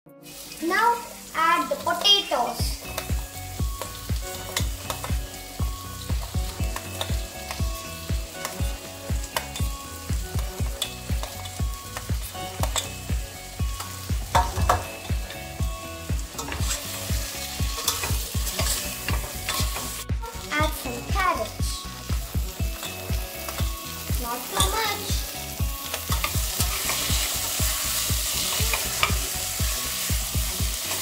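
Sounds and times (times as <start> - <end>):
vegetables sizzling in oil: 0.2 - 31.0
background music with beat: 2.6 - 31.0
steel spoon clinking: 10.7 - 13.1, 16.3 - 20.0, 25.8 - 29.4.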